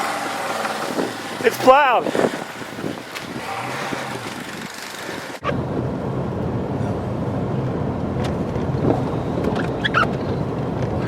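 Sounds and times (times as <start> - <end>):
wind noise on microphone: 0.0 - 11.0
deep engine rumble: 5.4 - 11.0.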